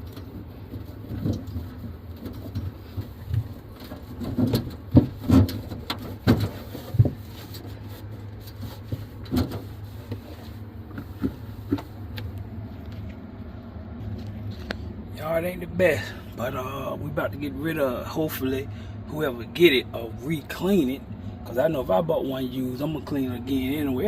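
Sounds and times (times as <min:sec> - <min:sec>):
steady low hum: 0:00.0 - 0:24.0
knocks and rubbing from cleaning: 0:00.7 - 0:12.0.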